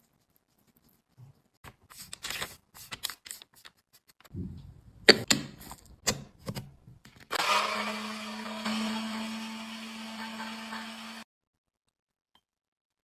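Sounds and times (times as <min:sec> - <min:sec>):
small electric motor whirring: 0:07.3 - 0:11.2.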